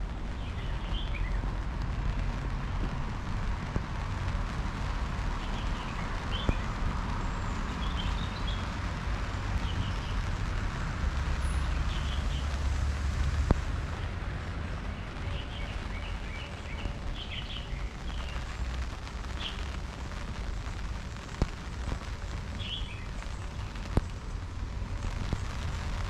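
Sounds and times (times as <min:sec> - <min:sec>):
traffic rumble: 0:00.0 - 0:26.0
small birds chirping: 0:00.3 - 0:01.4, 0:05.4 - 0:08.8, 0:09.6 - 0:10.4, 0:11.4 - 0:12.7, 0:14.7 - 0:19.8, 0:20.4 - 0:26.0.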